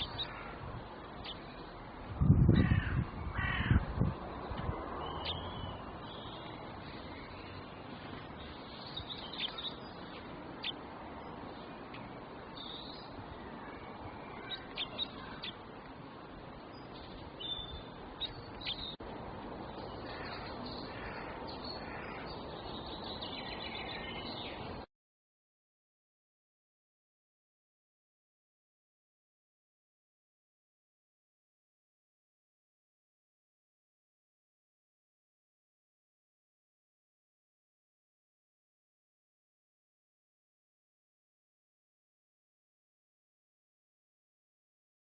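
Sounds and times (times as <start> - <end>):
loud bird calls: 0.0 - 0.6, 11.9 - 15.7, 19.8 - 24.7
steady background hiss: 0.0 - 2.3, 3.0 - 24.9
high bird chirps: 8.2 - 10.8, 11.9 - 15.6, 16.7 - 19.0.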